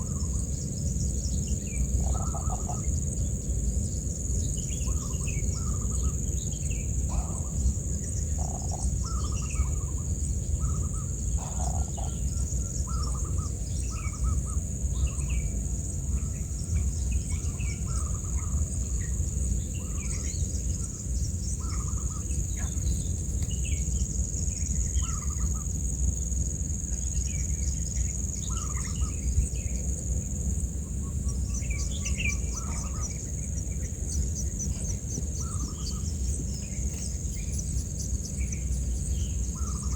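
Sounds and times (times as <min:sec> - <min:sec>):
birds chirping: 0:31.0 - 0:39.9.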